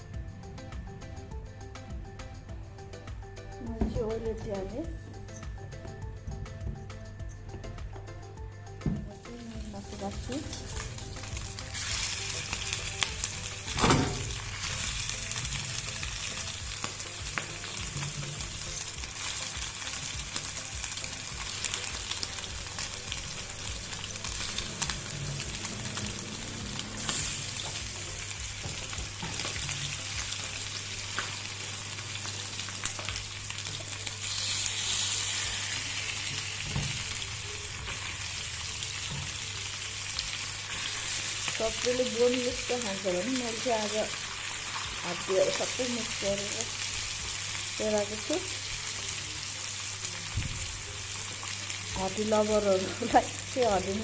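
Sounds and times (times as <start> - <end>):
chicken sizzling in hot oil: 9.4 - 54.0.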